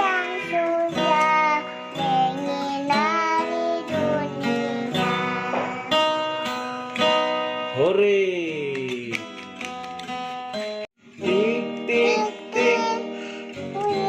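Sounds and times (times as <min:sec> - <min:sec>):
child singing: 0:00.0 - 0:06.2, 0:11.4 - 0:14.0
strummed acoustic guitar: 0:00.0 - 0:14.0.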